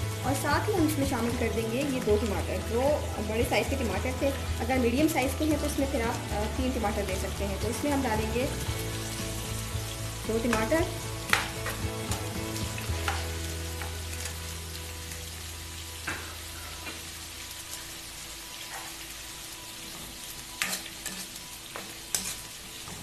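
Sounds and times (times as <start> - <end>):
vegetables sizzling in oil: 0.0 - 23.0
spatula scraping and tapping pan: 11.3 - 12.2, 12.9 - 14.4, 20.5 - 23.0.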